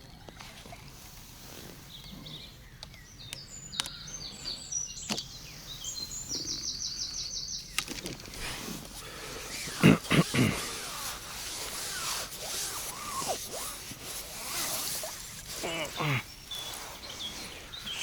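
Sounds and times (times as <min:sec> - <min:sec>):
songbird chirping and trilling: 0:01.6 - 0:09.8, 0:15.8 - 0:18.0.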